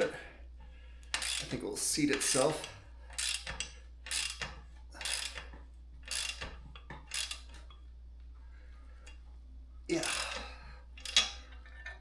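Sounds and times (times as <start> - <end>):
metallic ratcheting of press: 1.1 - 7.7, 10.0 - 12.0.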